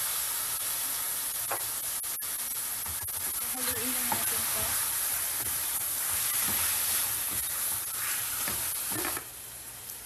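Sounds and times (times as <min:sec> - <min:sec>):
chicken sizzling in oil: 0:00.0 - 0:10.0
spatula scraping a pan: 0:02.8 - 0:09.2.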